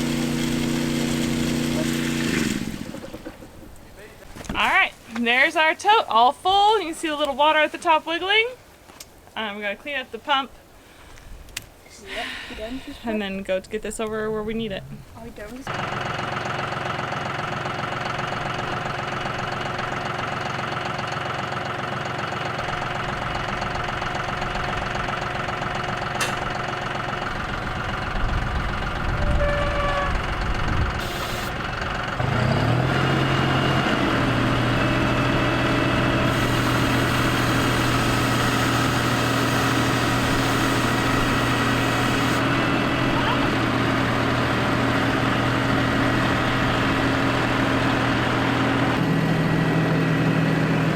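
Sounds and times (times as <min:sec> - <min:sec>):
engine knocks: 0:00.0 - 0:04.0
engine running: 0:00.0 - 0:04.6, 0:14.6 - 0:50.9.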